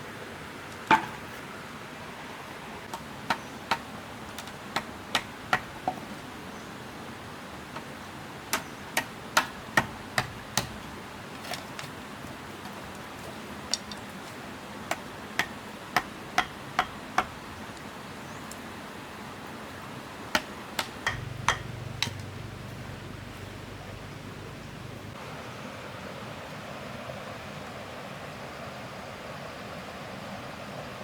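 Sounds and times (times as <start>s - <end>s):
sharp knocks: 14.9s - 17.4s, 20.4s - 22.4s
low rumble: 21.1s - 25.2s.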